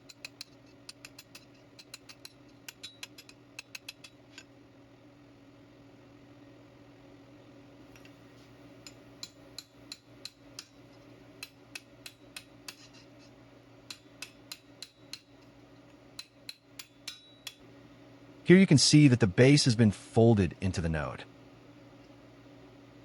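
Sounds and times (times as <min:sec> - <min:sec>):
steady low hum: 0:03.9 - 0:23.0
hammer tapping on steel tube: 0:09.2 - 0:10.8, 0:13.9 - 0:15.3, 0:16.2 - 0:17.6.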